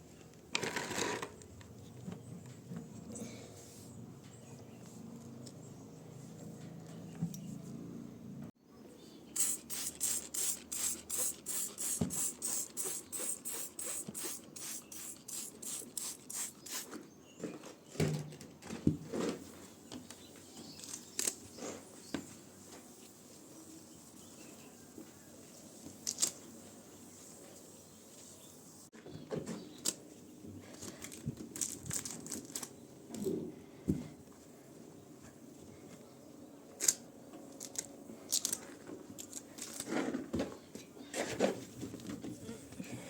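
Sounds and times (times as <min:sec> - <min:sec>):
brush scrubbing: 0:21.8 - 0:26.0.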